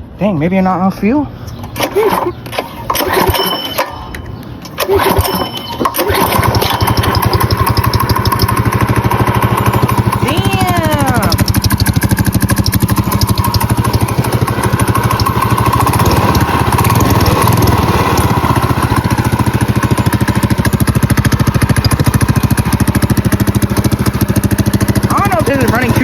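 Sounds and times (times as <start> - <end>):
go-kart engine running: 1.6 - 26.0.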